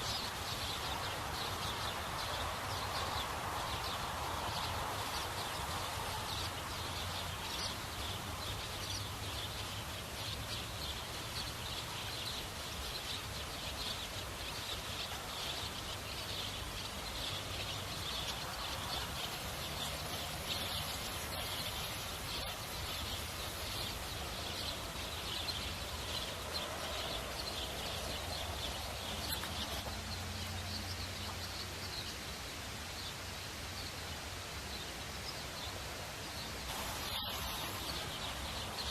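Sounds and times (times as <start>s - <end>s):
rapid high chirping calls: 36.7s - 38.9s.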